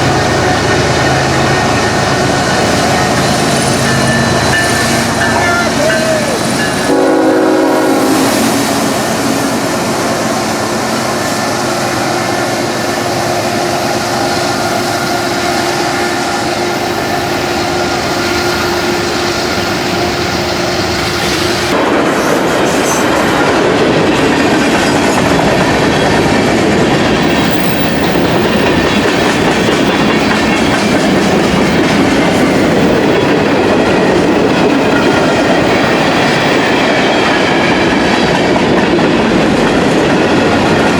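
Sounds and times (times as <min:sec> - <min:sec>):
train horn blast: 0:00.0 - 0:21.8
freight train wheels clattering: 0:00.0 - 0:40.9.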